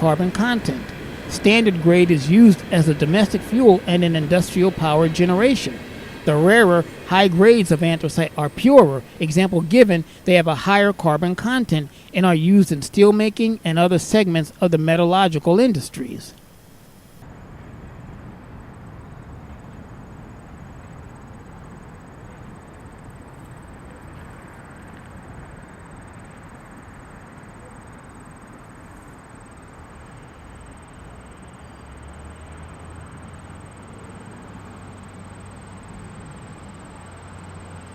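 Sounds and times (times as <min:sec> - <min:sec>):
train rumbling: 0:00.0 - 0:20.4.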